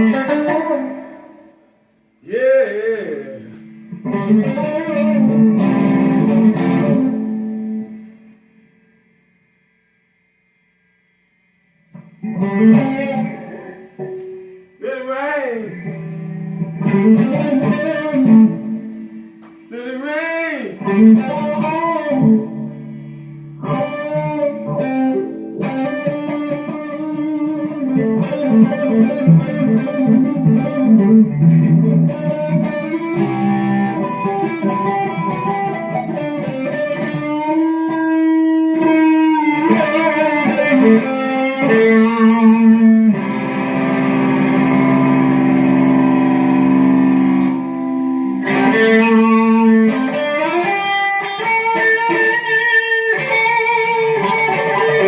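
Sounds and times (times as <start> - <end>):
electric guitar with sliding notes: 0.0 - 1.5, 2.2 - 8.2, 12.0 - 14.6, 15.6 - 19.6, 20.7 - 55.0.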